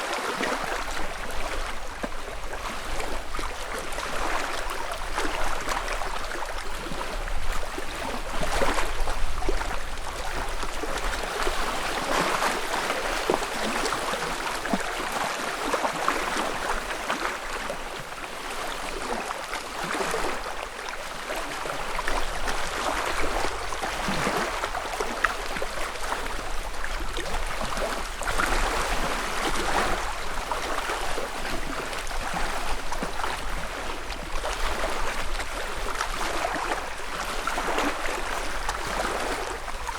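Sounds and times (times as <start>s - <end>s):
lake ripples lapping at shore: 0.0s - 39.9s.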